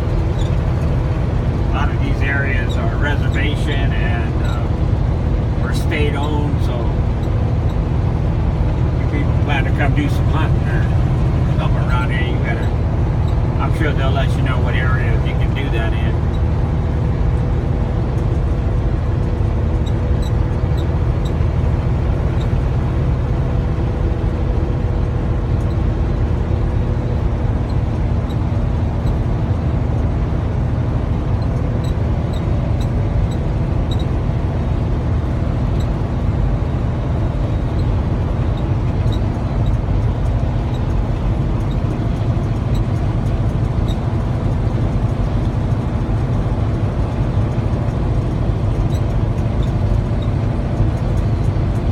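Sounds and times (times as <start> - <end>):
diesel engine drone: 0.0 - 51.9
faint light ticks: 25.0 - 26.3, 37.7 - 51.9.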